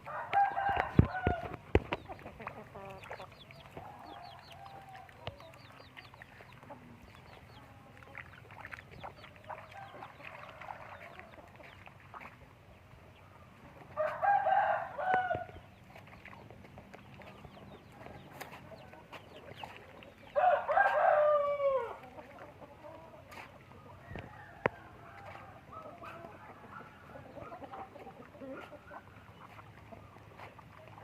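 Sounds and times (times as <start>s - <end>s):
rooster crowing: 0.0s - 1.6s, 14.0s - 15.5s, 20.4s - 22.0s
chicken clucking: 0.0s - 31.0s.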